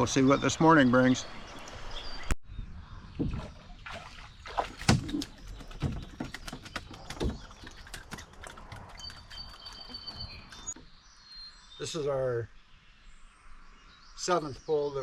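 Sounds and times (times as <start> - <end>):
paddle splashing water: 3.2 - 10.3
paddle knocking on canoe: 4.5 - 7.6.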